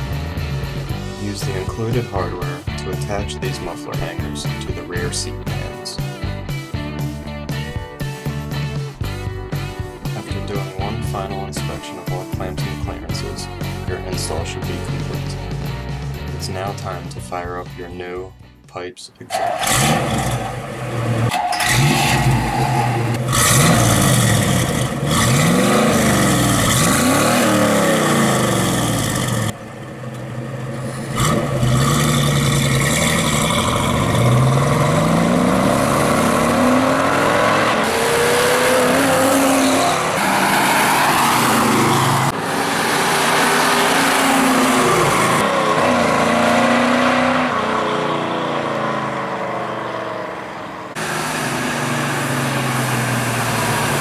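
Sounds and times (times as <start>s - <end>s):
car accelerating and driving by: 19.3s - 54.0s
car engine revving: 19.3s - 54.0s.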